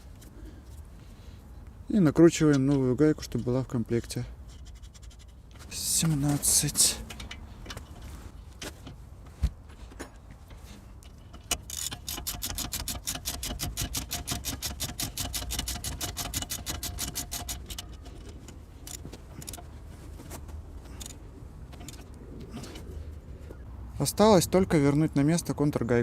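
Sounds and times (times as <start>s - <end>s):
metal clicks: 4.5s - 9.0s, 10.4s - 19.7s
ratchet wrench clicking: 11.4s - 19.6s, 20.9s - 21.2s.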